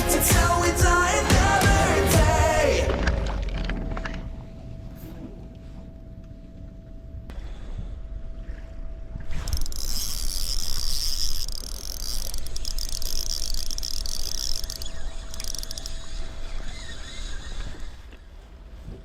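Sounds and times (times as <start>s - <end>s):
boat engine rumbling: 1.1s - 18.8s
steady hum: 2.4s - 18.4s
high wavering whir: 9.2s - 18.4s.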